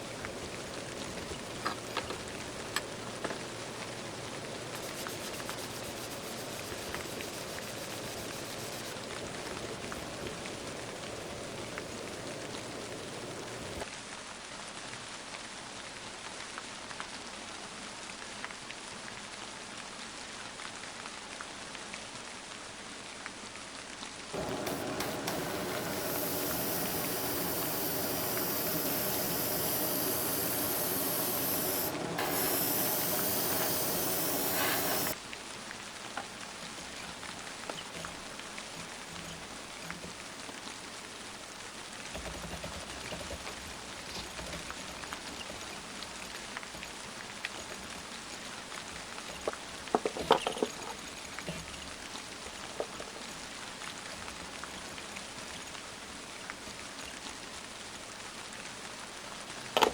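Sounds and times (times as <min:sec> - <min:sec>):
airbrush spraying hiss: 0:00.0 - 0:13.8, 0:24.4 - 0:35.2
soft rain: 0:00.0 - 0:13.9, 0:24.4 - 0:59.9
small clicks and taps: 0:42.1 - 0:48.2.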